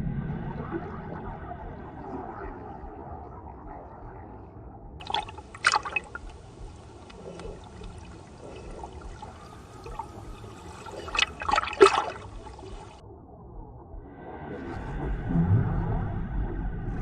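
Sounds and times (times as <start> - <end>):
water running and trickling: 5.0 - 13.0
water splashes: 5.0 - 13.0.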